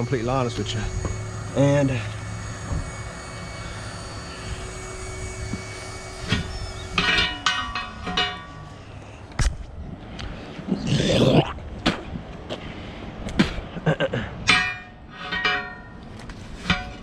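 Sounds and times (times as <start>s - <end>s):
tire irons clanking on wheel rim: 5.5s - 8.8s, 14.5s - 17.0s.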